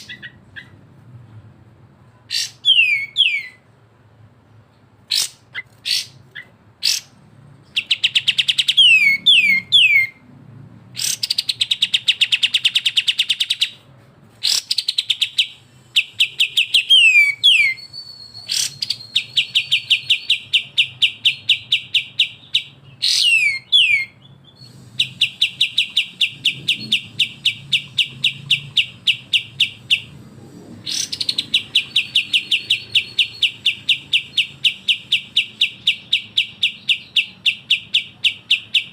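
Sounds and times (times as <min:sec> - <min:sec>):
bird rattling song: 0:14.4 - 0:30.2, 0:30.8 - 0:38.9.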